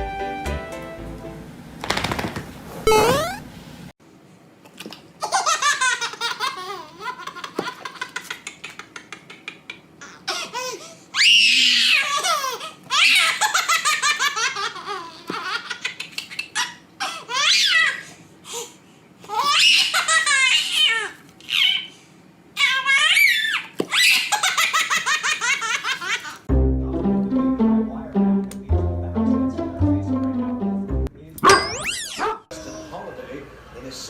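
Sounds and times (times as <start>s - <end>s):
baby laughing: 4.8s - 10.9s, 11.9s - 18.0s, 19.3s - 21.9s, 22.6s - 26.4s.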